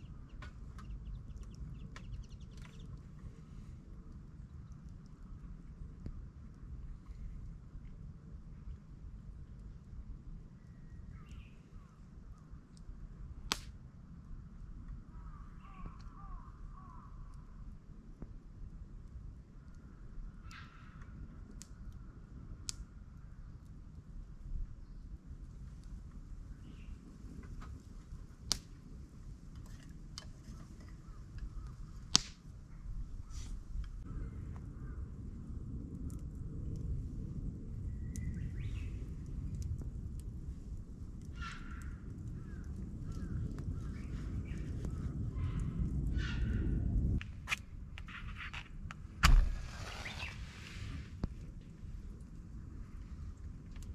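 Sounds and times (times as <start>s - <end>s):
birds calling: 0.0s - 3.2s
steady low rumble: 0.0s - 15.6s, 21.2s - 53.9s
low background rumble: 0.0s - 18.1s
faint clicks: 0.3s - 3.4s
sharp cracks: 13.5s - 13.8s, 32.0s - 32.5s, 47.2s - 51.0s.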